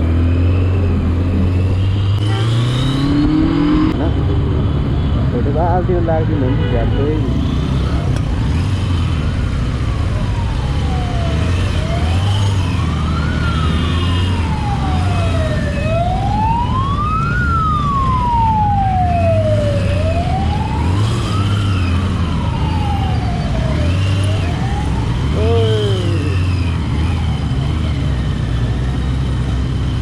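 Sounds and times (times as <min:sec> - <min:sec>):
emergency vehicle siren wailing: 0:07.0 - 0:30.0.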